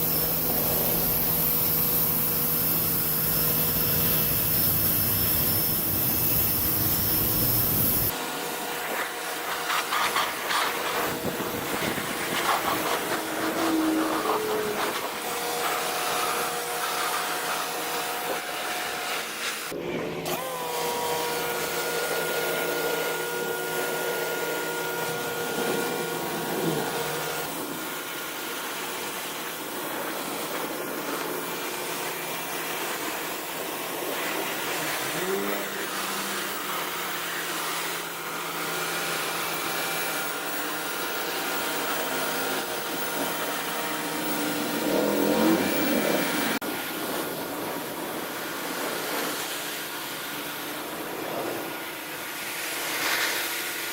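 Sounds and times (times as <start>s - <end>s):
pressure washer motor whining: 0.0s - 47.0s
water spray hissing: 9.4s - 17.6s.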